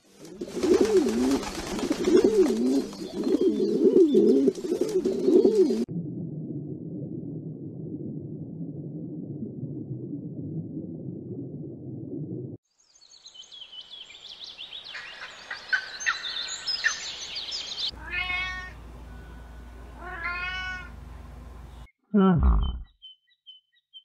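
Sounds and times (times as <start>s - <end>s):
wings flapping: 0.1s - 5.8s
pigeons cooing: 0.3s - 5.9s
steady low rumble: 5.8s - 12.6s.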